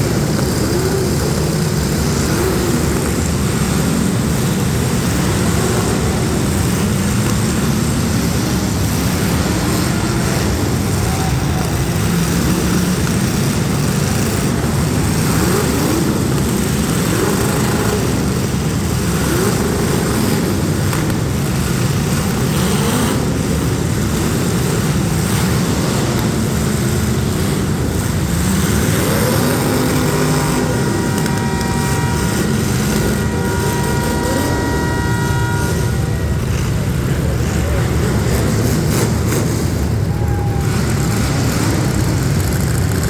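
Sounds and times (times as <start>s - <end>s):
car engines revving: 0.0s - 43.0s
steady high tones: 29.6s - 38.8s.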